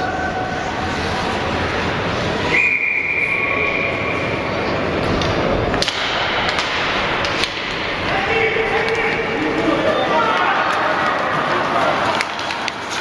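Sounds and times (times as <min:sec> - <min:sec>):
high whistle-like tone: 0:02.5 - 0:04.3
hockey sticks and puck clacking: 0:05.0 - 0:13.0.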